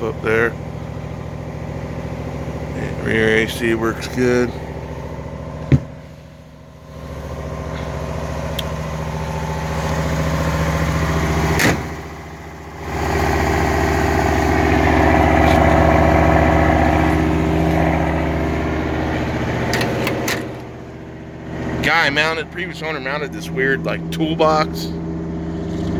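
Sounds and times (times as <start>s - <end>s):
vehicle engine idling: 0.0s - 25.9s.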